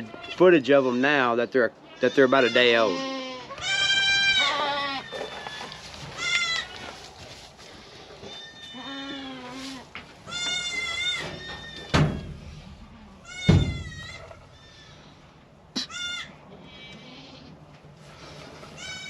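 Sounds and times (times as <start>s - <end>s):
goat kids bleating: 0.0s - 7.1s, 8.2s - 11.9s, 12.8s - 17.7s, 18.5s - 19.0s
sharp knocks: 13.4s - 14.0s.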